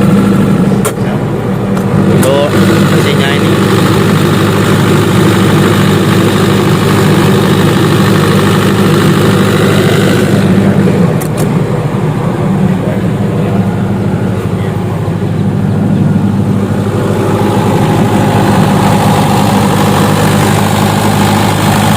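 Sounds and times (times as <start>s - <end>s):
generator engine drone: 0.0s - 21.9s.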